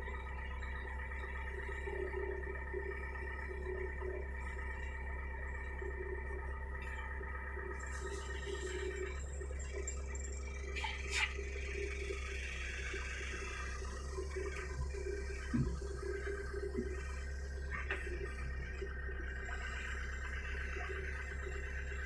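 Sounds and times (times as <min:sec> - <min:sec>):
excavator engine and hydraulics whine: 0:00.0 - 0:22.0.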